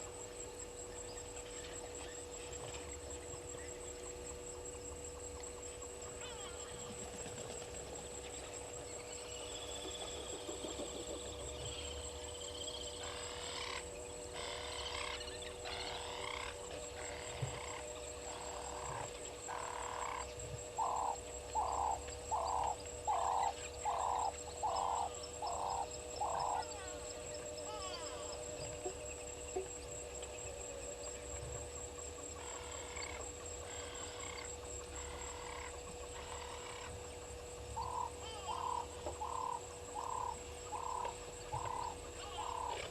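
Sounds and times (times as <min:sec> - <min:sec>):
steady hum: 0:00.0 - 0:42.9
animal calling: 0:37.8 - 0:42.9.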